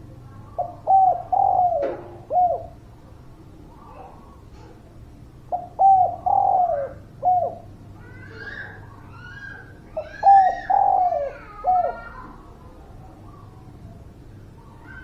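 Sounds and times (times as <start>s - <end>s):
dove cooing: 0.5s - 2.8s, 5.5s - 12.4s.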